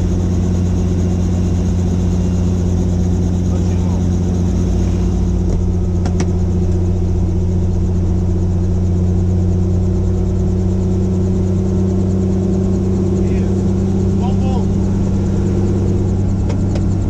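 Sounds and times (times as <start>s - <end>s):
helicopter rotor and engine drone: 0.0s - 17.0s.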